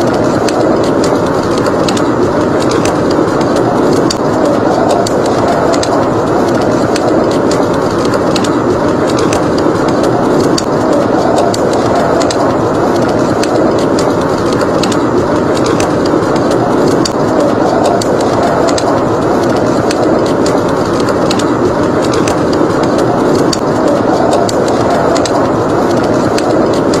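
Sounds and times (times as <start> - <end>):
rushing blizzard wind: 0.0 - 27.0
wood fire crackling and popping: 0.0 - 27.0.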